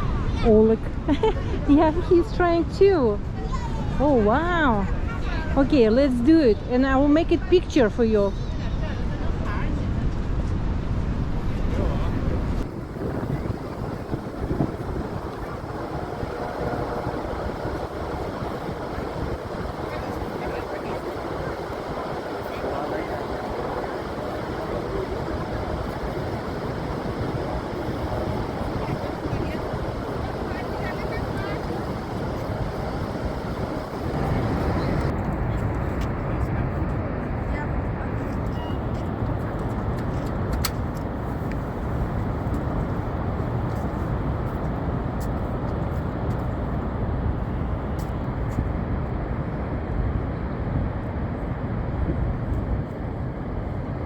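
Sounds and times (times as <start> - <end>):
wind buffeting microphone: 0.0 - 54.0
waterfall roaring: 11.7 - 49.8.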